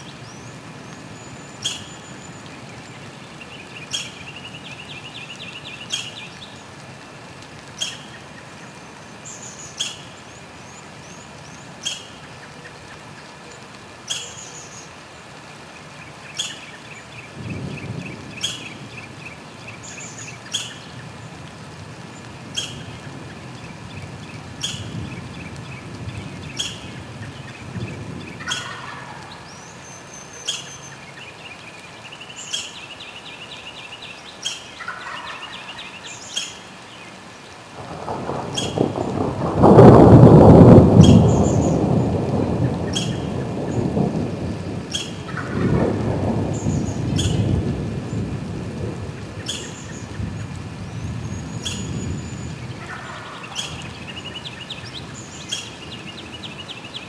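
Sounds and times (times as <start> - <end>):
thunder rumbling: 17.3 - 29.8, 37.8 - 57.0
bird call: 28.4 - 36.7, 42.7 - 43.5, 44.9 - 45.5, 46.6 - 47.5, 49.4 - 50.2, 51.2 - 57.0.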